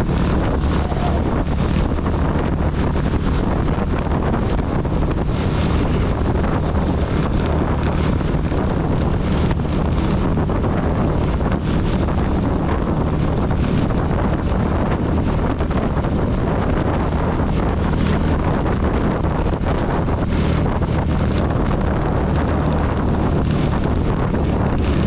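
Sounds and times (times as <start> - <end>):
heavy rain hissing: 0.0 - 1.9
motorcycle engine cruising: 0.0 - 25.0
wind buffeting microphone: 0.0 - 25.0.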